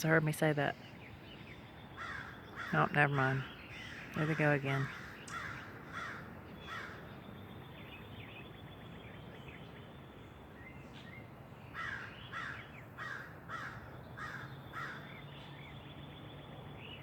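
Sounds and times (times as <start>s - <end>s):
crows cawing: 2.0s - 3.0s, 3.7s - 7.0s, 11.8s - 15.1s.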